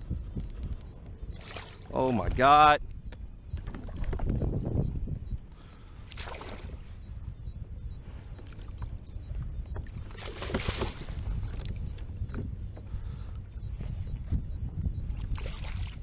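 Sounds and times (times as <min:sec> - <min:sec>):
wind rumble on microphone: 0:00.0 - 0:16.0
water splashing around kayak: 0:01.2 - 0:02.4, 0:06.0 - 0:07.2, 0:08.2 - 0:14.4, 0:15.0 - 0:16.0.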